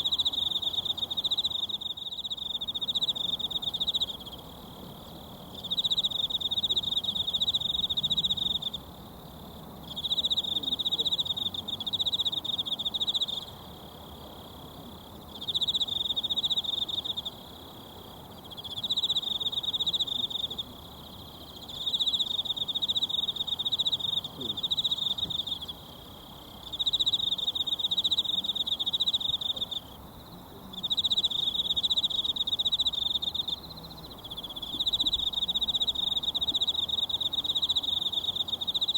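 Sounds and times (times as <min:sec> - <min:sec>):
insect trilling: 0:15.4 - 0:38.9.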